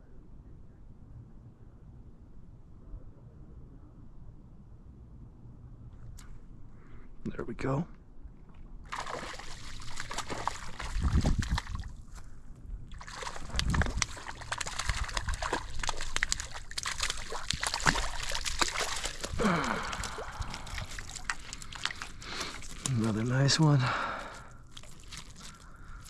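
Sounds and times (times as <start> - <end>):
water sloshing: 8.8 - 12.2, 12.8 - 26.0
fish splashing at water surface: 8.9 - 11.9, 12.9 - 23.1, 23.9 - 26.0.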